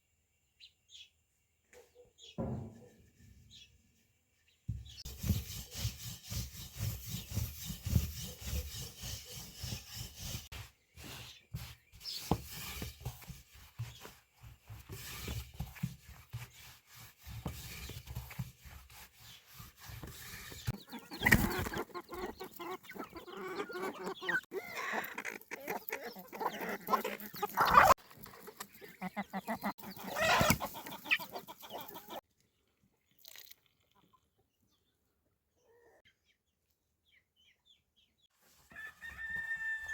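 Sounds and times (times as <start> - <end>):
chickens clucking: 20.6 - 32.2.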